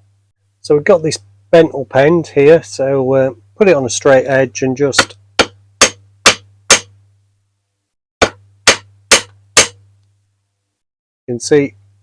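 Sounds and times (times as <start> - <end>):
hammer tapping steel axle: 5.0 - 6.9, 8.2 - 9.8.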